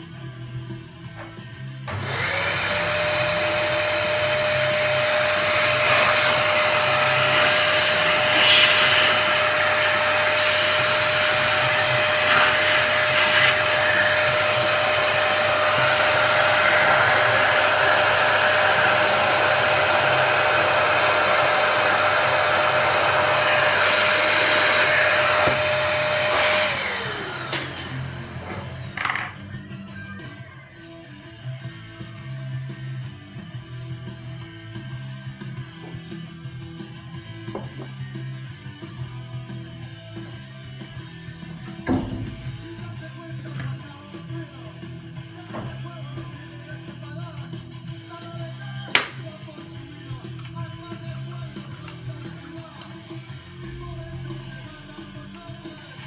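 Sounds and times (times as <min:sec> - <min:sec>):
vacuum cleaner motor whining: 0:01.2 - 0:30.6.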